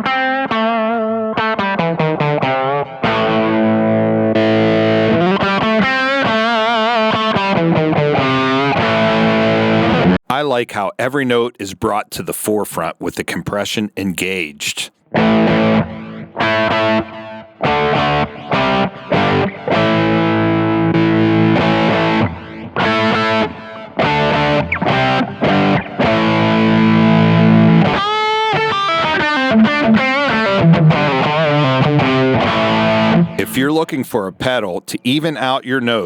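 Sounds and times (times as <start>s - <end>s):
distorted electric guitar: 0.0s - 10.2s, 15.0s - 33.7s.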